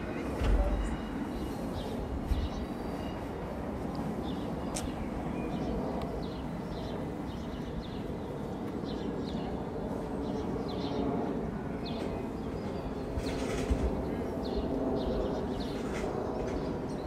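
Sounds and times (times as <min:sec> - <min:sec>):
small birds chirping: 0:03.9 - 0:11.1, 0:11.8 - 0:17.0.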